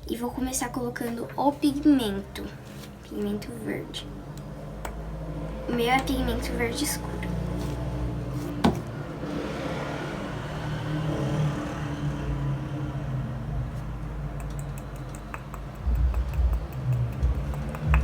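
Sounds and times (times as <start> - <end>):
soft rubbing: 2.4 - 3.2, 7.5 - 8.9
steady low hum: 13.2 - 18.0.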